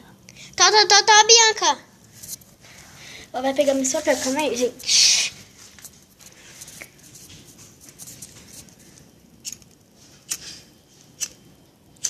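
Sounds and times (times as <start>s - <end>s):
paper fire crackling: 2.1s - 12.0s
sharp snaps of fire: 9.3s - 12.0s.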